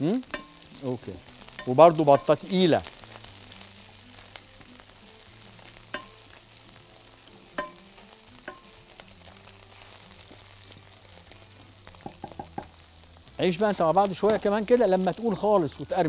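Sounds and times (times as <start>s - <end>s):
chicken skin sizzling in fat: 0.0s - 16.0s
light clinks against pan: 7.6s - 7.8s.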